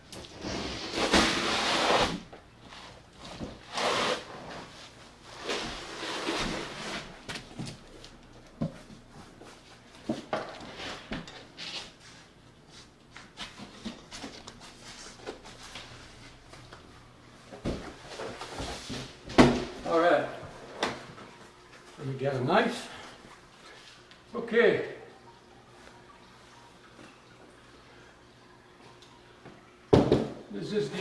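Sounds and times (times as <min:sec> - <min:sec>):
cardboard boxes scraping: 0:00.4 - 0:02.2, 0:02.8 - 0:07.3.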